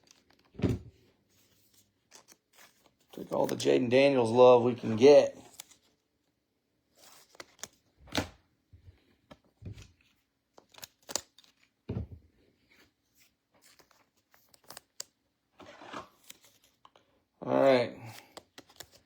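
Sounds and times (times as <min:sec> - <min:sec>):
cards tapping and rustling: 0:00.0 - 0:06.0, 0:07.0 - 0:08.4, 0:09.0 - 0:17.1, 0:18.0 - 0:19.0.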